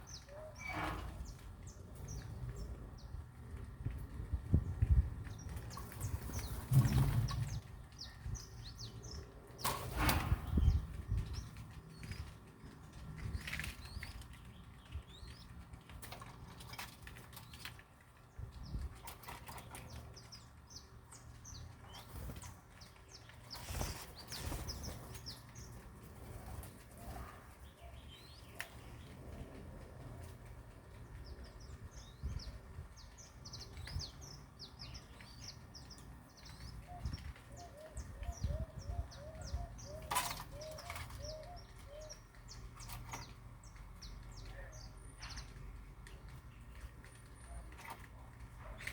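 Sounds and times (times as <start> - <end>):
small birds chirping: 0.0 - 48.9
wings flapping: 21.9 - 27.5.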